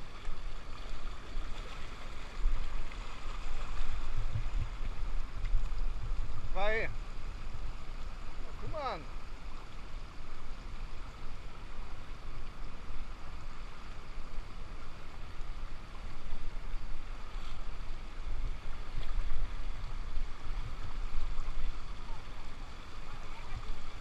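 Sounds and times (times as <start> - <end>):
waterfall rushing: 6.4 - 9.2.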